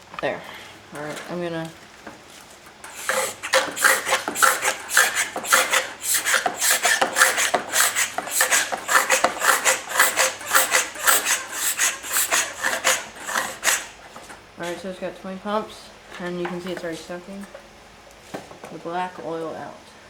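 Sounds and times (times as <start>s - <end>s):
hand pump plunger rasping: 2.8s - 14.3s.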